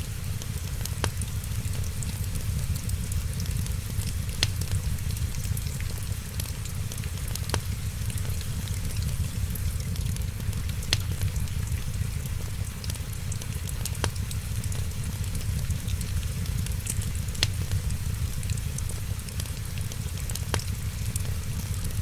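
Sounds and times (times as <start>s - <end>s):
fireplace fire crackling: 0.0s - 22.0s
steady rain: 0.0s - 22.0s
sharp pops: 10.4s - 11.5s.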